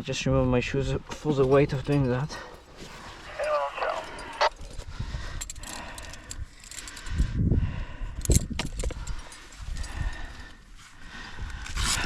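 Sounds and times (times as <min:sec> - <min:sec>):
metal climbing hardware clinking: 0:01.1 - 0:07.3, 0:08.1 - 0:10.4.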